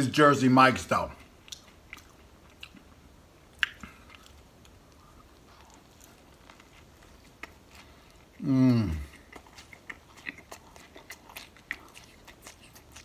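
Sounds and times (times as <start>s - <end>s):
person biting and chewing sandwich: 3.6s - 13.0s.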